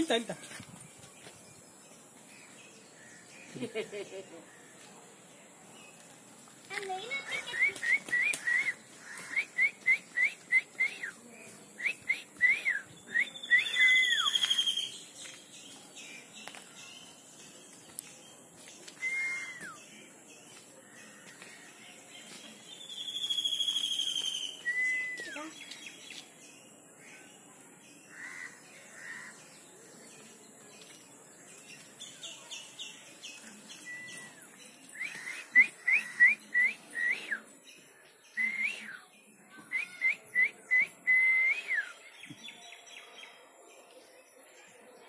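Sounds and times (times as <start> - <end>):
bird whistled notes: 7.2 - 11.2, 11.8 - 15.0, 19.0 - 19.8, 22.9 - 25.6
bird sharp whistled chirps: 7.3 - 11.2, 11.8 - 15.0, 19.0 - 19.8, 22.9 - 25.7.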